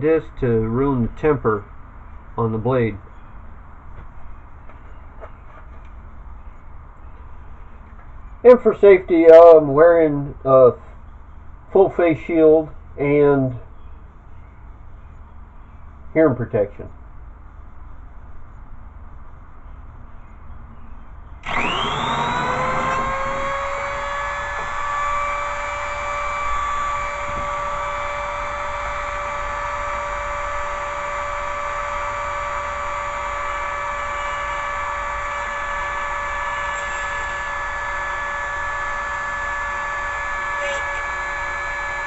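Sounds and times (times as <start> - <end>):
rotary tool high-pitched whine: 21.4 - 42.0.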